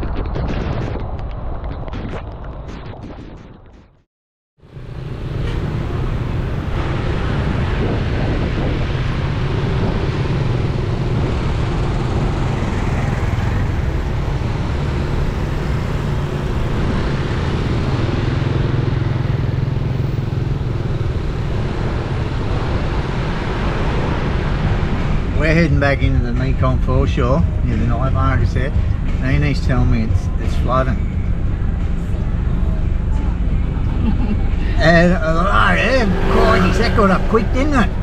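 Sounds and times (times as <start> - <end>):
vehicle engine and road noise: 0.0 - 38.0.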